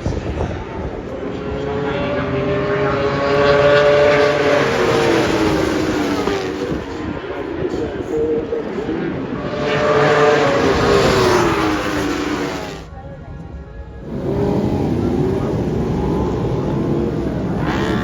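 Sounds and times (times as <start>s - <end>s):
superbike engines revving: 0.8s - 12.9s, 14.0s - 18.0s.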